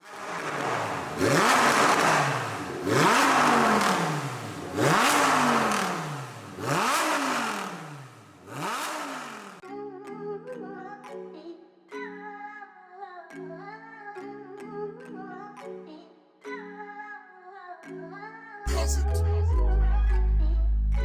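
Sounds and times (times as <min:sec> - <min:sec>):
loud engine revving: 0:00.0 - 0:09.6
music: 0:09.6 - 0:21.0.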